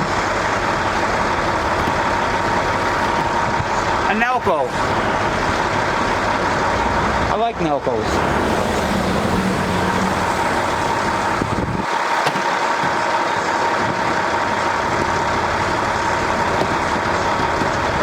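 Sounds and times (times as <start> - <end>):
mechanical running whine: 0.0 - 6.8, 8.0 - 18.0
low rumble: 8.0 - 12.0.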